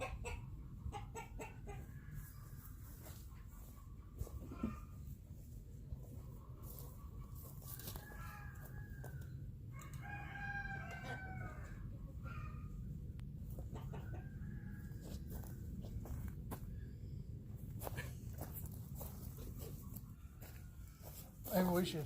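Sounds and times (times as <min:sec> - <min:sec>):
rooster crowing: 0:07.6 - 0:11.9.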